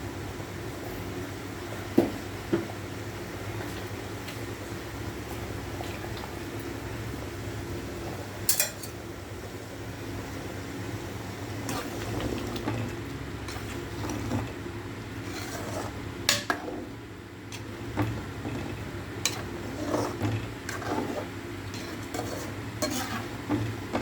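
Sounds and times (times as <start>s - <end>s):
steady low hum: 0.0s - 24.0s
utensils clinking against pot: 8.5s - 9.0s.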